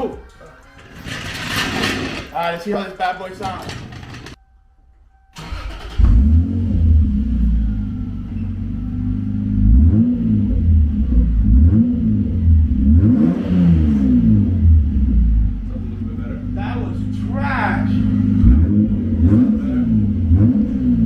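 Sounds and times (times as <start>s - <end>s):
car engine revving: 5.4s - 21.0s
car engine starting: 5.4s - 21.0s.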